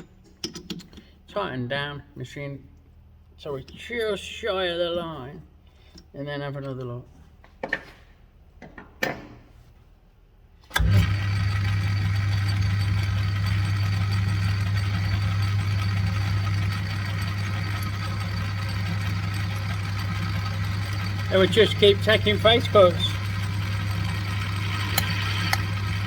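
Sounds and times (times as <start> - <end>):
lathe motor humming: 10.8 - 26.0
sharp metallic clicks: 24.4 - 26.0.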